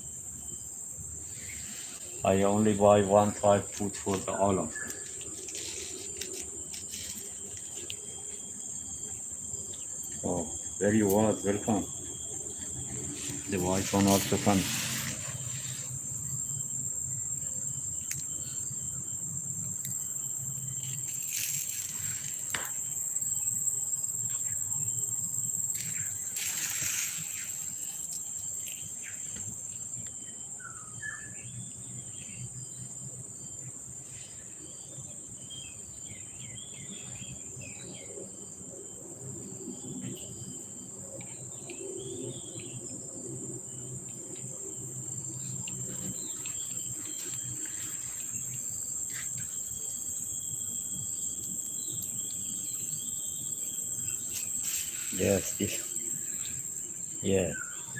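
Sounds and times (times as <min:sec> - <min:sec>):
high-pitched insect drone: 0:00.0 - 0:57.9.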